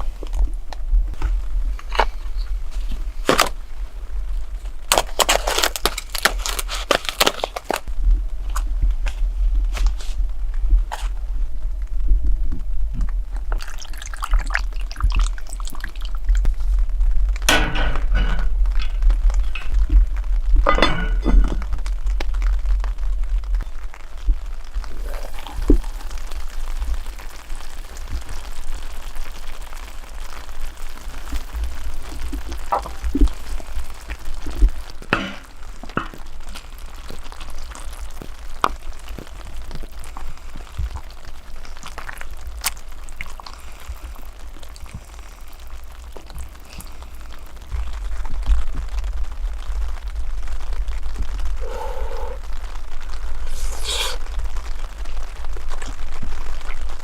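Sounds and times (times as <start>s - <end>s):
low steady rumble: 0.0s - 5.0s, 7.8s - 28.3s
campfire crackling and hissing: 0.0s - 57.0s
sharp fire pops: 15.0s - 44.2s.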